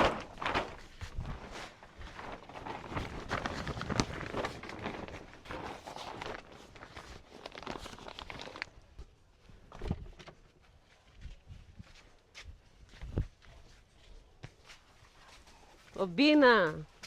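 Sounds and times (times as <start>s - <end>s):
footsteps: 10.4s - 17.0s.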